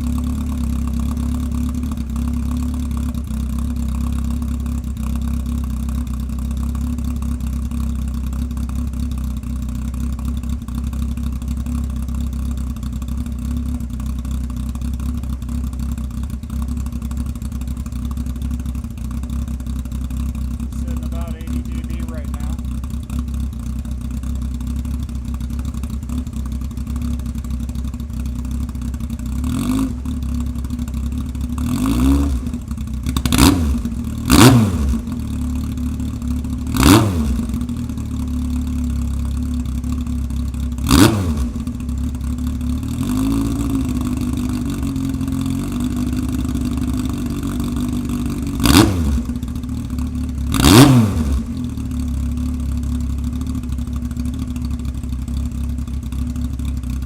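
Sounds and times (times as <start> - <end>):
motorcycle engine revving: 15.0 - 57.0.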